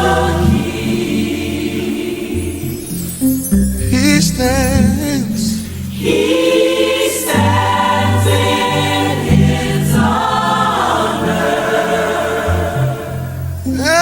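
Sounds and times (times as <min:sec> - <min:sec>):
gospel choir singing: 0:00.0 - 0:14.0
instrumental accompaniment with bass: 0:02.5 - 0:06.3.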